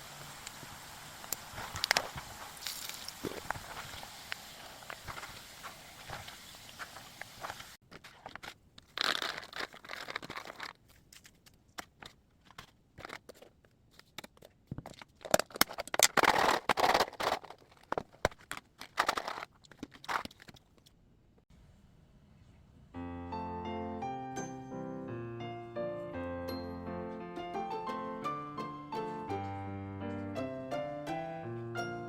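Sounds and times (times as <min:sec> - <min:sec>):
snack crinkling and crunching: 0:01.4 - 0:20.8.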